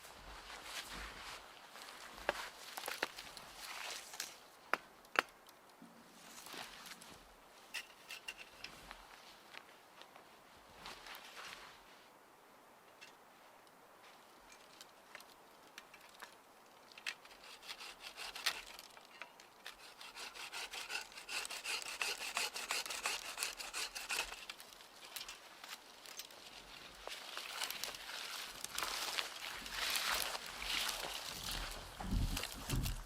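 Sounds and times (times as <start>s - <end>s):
hand saw cutting wood: 17.3s - 18.8s, 19.7s - 24.5s.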